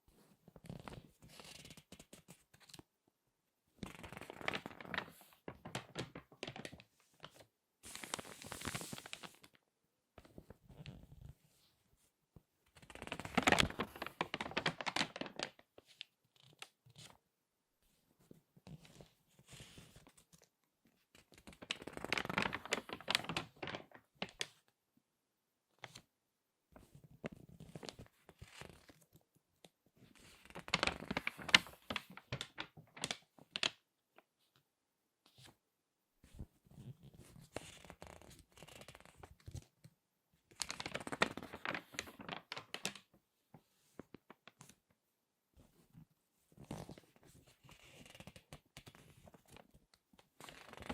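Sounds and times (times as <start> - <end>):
magazine pages crinkling: 3.9 - 9.5, 13.0 - 15.6, 21.4 - 24.5, 30.5 - 33.8, 40.6 - 43.1.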